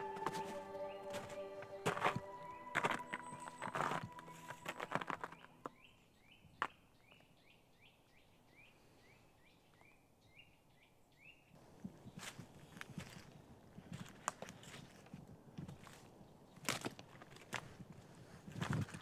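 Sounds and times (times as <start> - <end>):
background music: 0.0 - 5.7
footsteps on forest floor: 0.0 - 5.8, 12.1 - 17.8.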